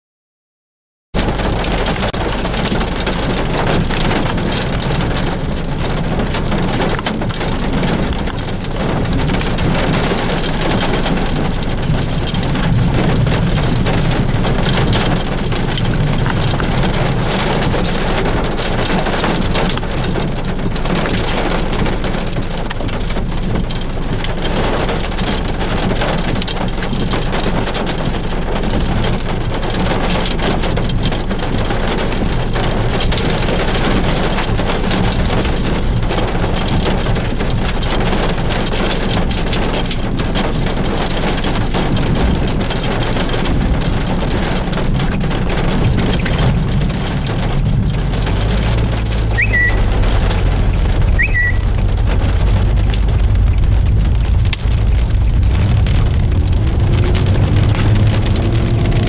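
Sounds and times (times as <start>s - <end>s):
low rumble: 1.2s - 26.8s, 40.2s - 59.0s
heavy rain falling: 1.2s - 59.0s.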